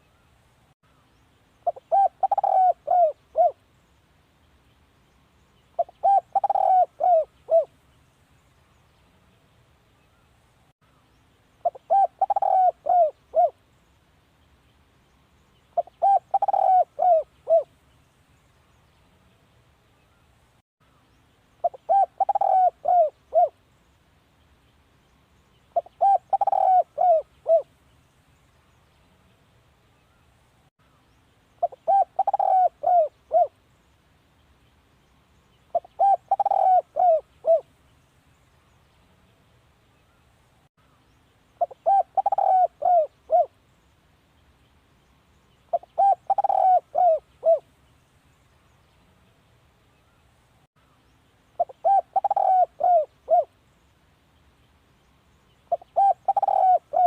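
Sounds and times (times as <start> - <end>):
dove cooing: 1.6 - 3.6, 5.8 - 7.7, 11.6 - 13.6, 15.8 - 17.7, 21.6 - 23.6, 25.8 - 27.7, 31.6 - 33.6, 35.7 - 37.7, 41.6 - 43.5, 45.7 - 47.7, 51.6 - 53.5, 55.7 - 57.0.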